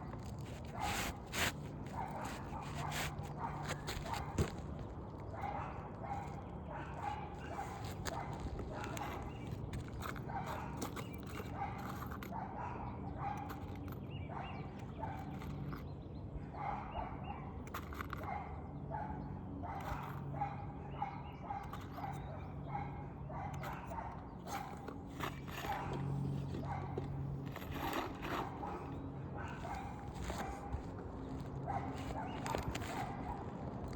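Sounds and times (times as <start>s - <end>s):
dog barking: 1.9s - 4.5s, 5.4s - 9.2s, 10.3s - 10.8s, 11.5s - 13.6s, 14.3s - 15.4s, 16.5s - 17.5s, 18.2s - 24.8s, 25.5s - 27.0s, 28.2s - 30.8s, 31.6s - 33.5s.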